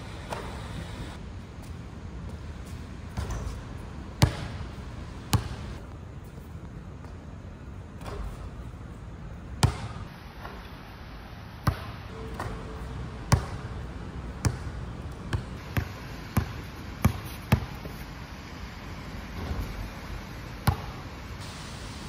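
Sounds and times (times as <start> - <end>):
basketball bouncing: 0.2 - 0.6, 3.1 - 3.6, 4.2 - 4.7, 5.3 - 5.8, 9.6 - 10.6, 11.6 - 12.6, 13.2 - 13.8, 14.4 - 18.0, 20.6 - 21.0.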